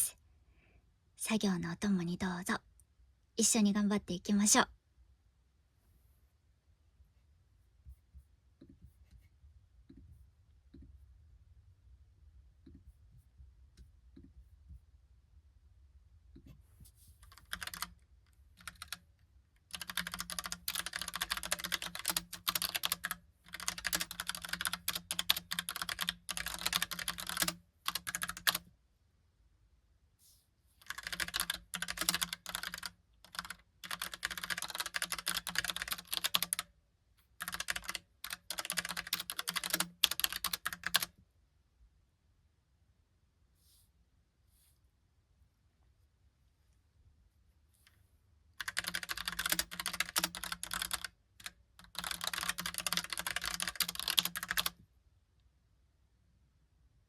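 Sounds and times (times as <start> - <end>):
mechanical keyboard typing: 17.2 - 18.0, 18.6 - 19.0, 19.6 - 28.6, 30.8 - 36.7, 37.4 - 41.1, 48.6 - 54.8.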